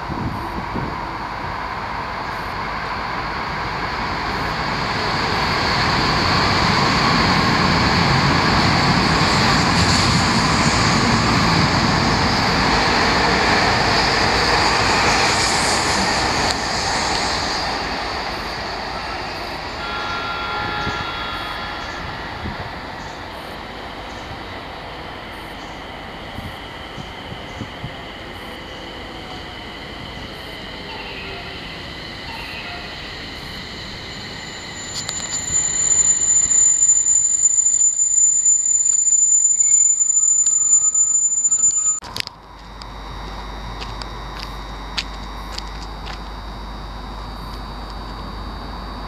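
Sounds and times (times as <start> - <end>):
train rumbling past: 0.0 - 42.0
high squealing tones: 5.1 - 24.4, 26.5 - 42.0.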